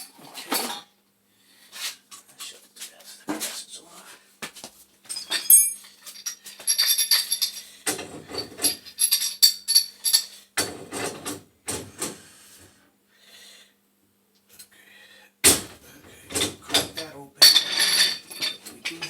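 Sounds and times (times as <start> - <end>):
small metal objects jingling: 5.1 - 7.7, 8.6 - 10.4, 17.4 - 19.0.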